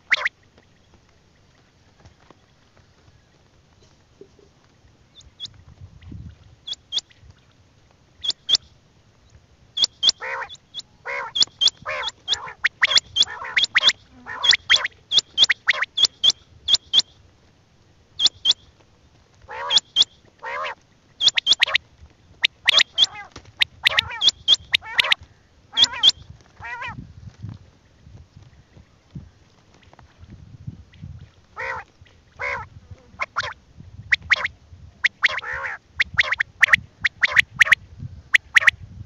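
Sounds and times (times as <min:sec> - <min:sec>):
quail calling: 0:00.0 - 0:00.3, 0:06.6 - 0:07.2, 0:08.2 - 0:08.7, 0:09.8 - 0:17.2, 0:18.2 - 0:18.7, 0:19.5 - 0:27.0, 0:31.6 - 0:38.8.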